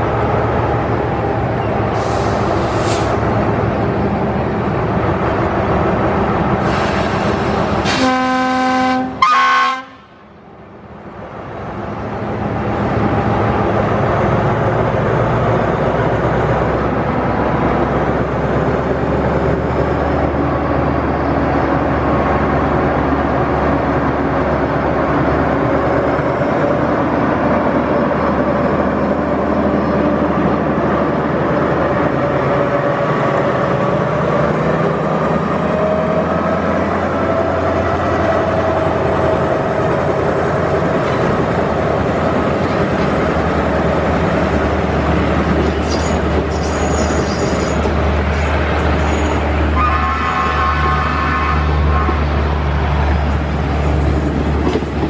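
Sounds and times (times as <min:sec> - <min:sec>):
locomotive engine and train running: 0:00.0 - 0:55.0
locomotive horn blast: 0:07.8 - 0:10.2, 0:49.1 - 0:52.3.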